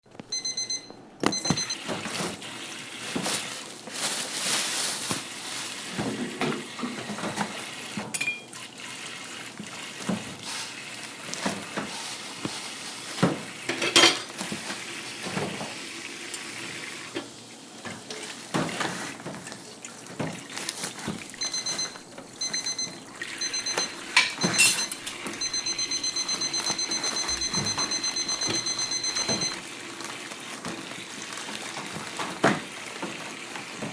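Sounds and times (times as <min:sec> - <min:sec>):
electronic alarm beeping: 0:00.3 - 0:01.8, 0:21.4 - 0:29.6
water running and splashing: 0:01.8 - 0:13.7, 0:29.6 - 0:33.9
dishes clattering: 0:13.7 - 0:14.3, 0:24.1 - 0:25.3.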